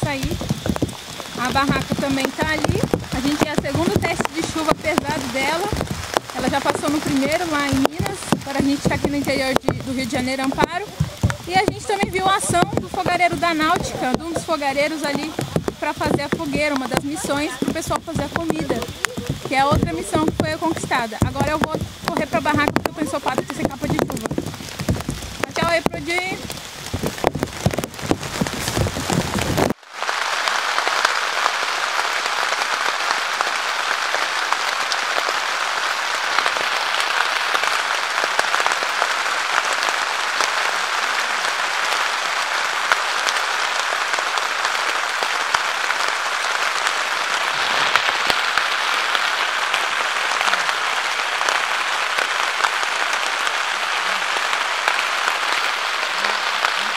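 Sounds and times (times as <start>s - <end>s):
heavy rain falling: 0.0s - 56.9s.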